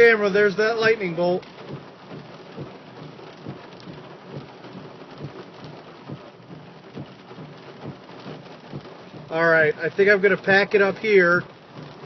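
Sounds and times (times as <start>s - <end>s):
raindrops tapping close by: 0.0s - 12.0s
steady rain: 0.0s - 12.0s.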